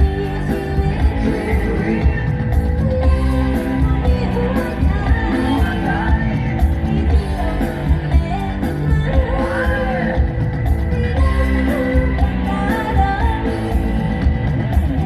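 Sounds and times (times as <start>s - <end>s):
live band music: 0.0s - 15.0s
woman singing: 0.0s - 15.0s.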